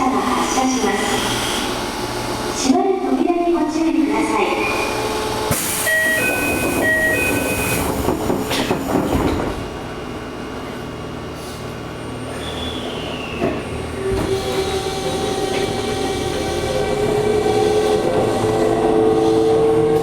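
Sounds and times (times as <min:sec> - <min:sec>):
train car hum: 0:00.0 - 0:20.0
train car clunk: 0:05.5 - 0:09.8.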